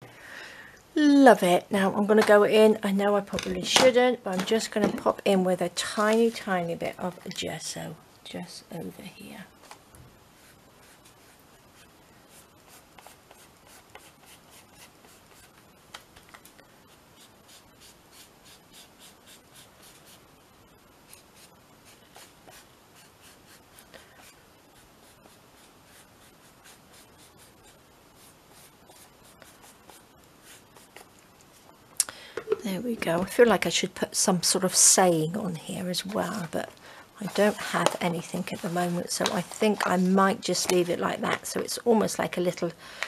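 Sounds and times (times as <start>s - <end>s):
rubbing and dabbing on paper: 10.3s - 15.6s, 16.9s - 20.2s, 21.1s - 31.7s, 37.2s - 41.0s.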